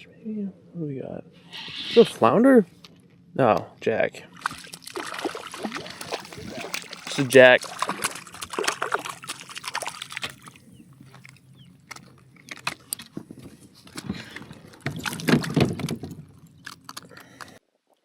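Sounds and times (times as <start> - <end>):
water sloshing around kayak: 4.3 - 16.8
knocks and splashes: 4.4 - 10.6, 14.0 - 16.5.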